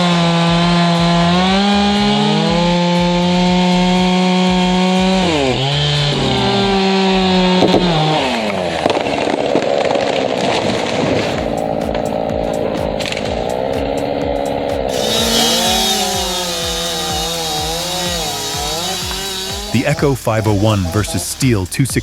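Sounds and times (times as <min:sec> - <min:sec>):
chainsaw running at high revs: 0:00.0 - 0:09.4, 0:11.4 - 0:21.6.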